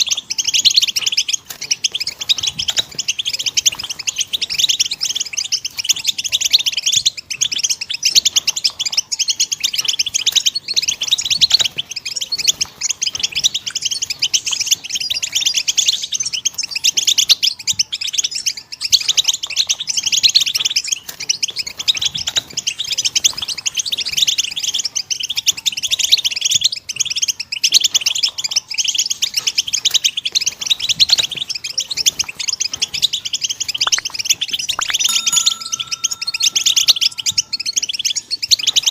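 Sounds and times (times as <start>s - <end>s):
goldfinches chirping: 0.0s - 38.9s.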